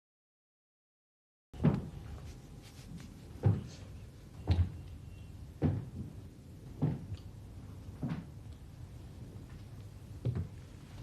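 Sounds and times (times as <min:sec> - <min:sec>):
dull thumps: 0:03.4 - 0:03.8.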